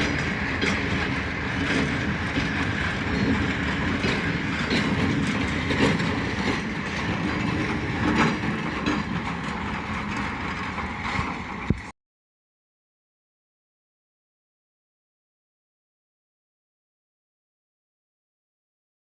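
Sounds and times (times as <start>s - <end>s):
train wheels clicking over rail joints: 0.0s - 11.9s.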